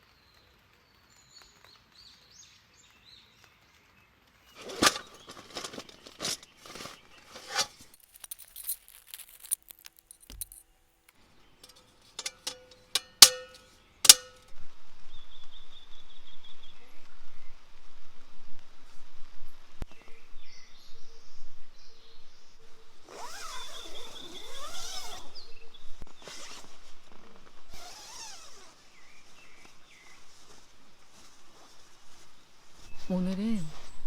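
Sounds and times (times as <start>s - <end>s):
outdoor background noise: 0.0s - 34.0s
sharp clicks and knocks: 11.6s - 14.5s.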